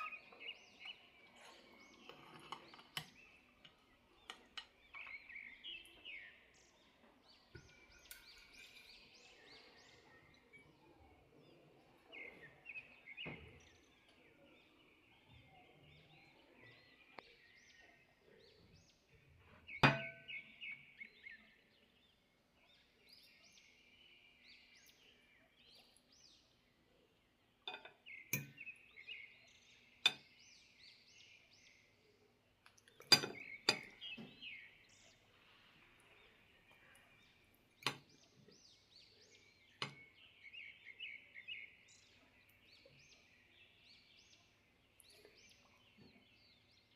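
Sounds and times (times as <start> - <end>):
birds chirping: 0.0 - 46.9
dishes and cutlery clinking: 1.4 - 5.1, 7.6 - 9.2, 19.8 - 20.3, 27.7 - 28.6, 33.0 - 34.3.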